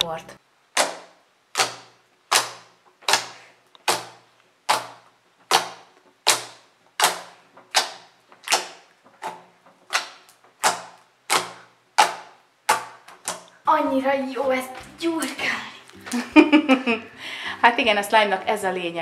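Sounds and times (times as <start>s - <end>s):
slime squelching and popping: 0.7s - 13.6s.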